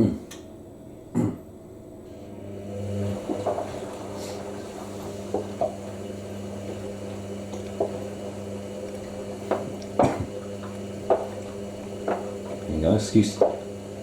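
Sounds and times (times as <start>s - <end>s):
low hum: 0.0s - 14.0s
washing machine drum tumbling: 2.7s - 14.0s
water sloshing: 3.1s - 13.7s.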